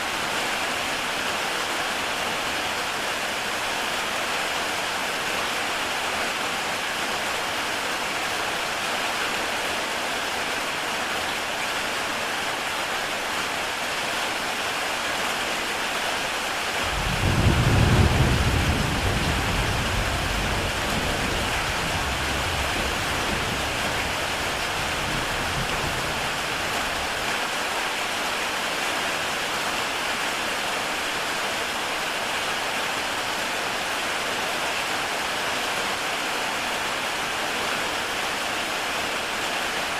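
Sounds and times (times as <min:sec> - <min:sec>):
heavy rain on a tile roof: 0:00.0 - 0:39.9
thunder rumbling: 0:16.8 - 0:27.2.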